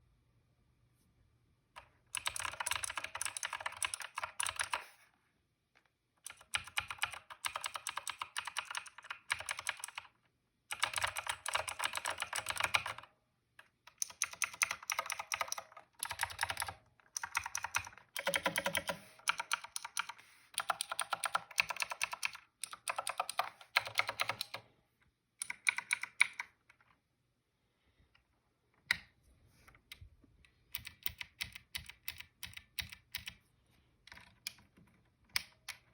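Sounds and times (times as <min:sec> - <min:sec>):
clicky mechanical keyboard typing: 0:01.8 - 0:04.9, 0:06.2 - 0:24.6, 0:25.4 - 0:26.9, 0:30.7 - 0:33.4, 0:34.1 - 0:35.9.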